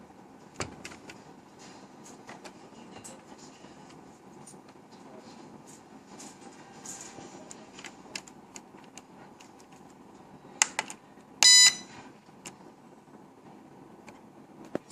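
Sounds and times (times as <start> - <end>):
electronic buzzer beep: 11.4 - 11.9.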